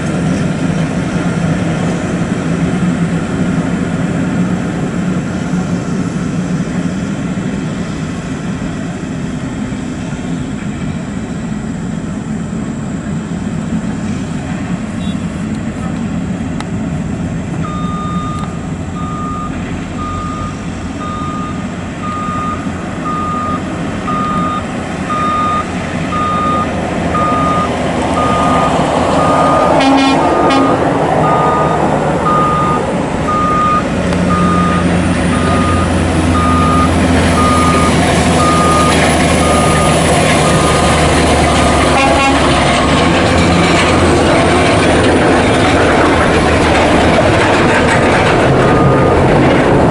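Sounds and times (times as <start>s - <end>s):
diesel truck engine running: 0.0s - 49.9s
truck reversing alarm beeping: 17.6s - 44.9s, 45.6s - 49.9s.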